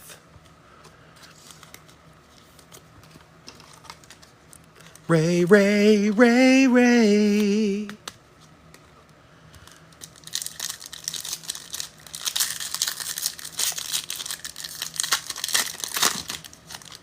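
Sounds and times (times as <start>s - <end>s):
wrappers crinkling and tearing: 9.6s - 17.0s.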